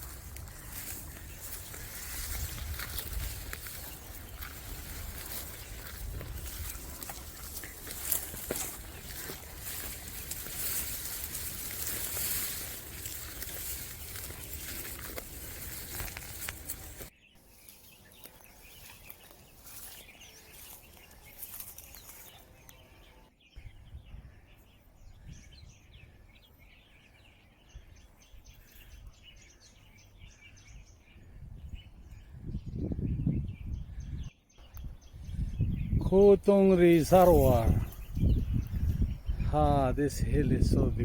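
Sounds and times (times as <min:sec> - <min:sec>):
wind noise: 0:00.0 - 0:17.1, 0:31.1 - 0:41.0.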